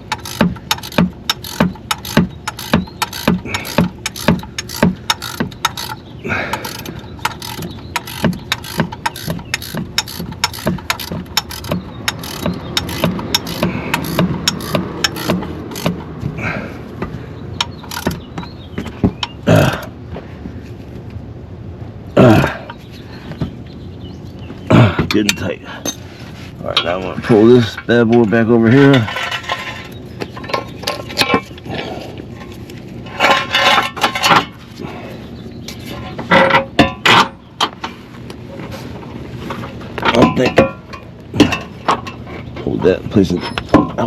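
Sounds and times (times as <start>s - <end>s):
ratchet wrench clicking: 0.0s - 16.0s, 17.6s - 18.2s
metal tools clinking: 0.1s - 16.0s, 17.7s - 18.2s, 26.7s - 31.6s.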